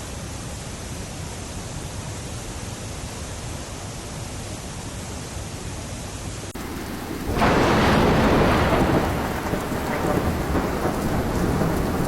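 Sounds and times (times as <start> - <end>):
heavy rain: 0.0 - 12.0
thunder rumble: 6.6 - 12.0.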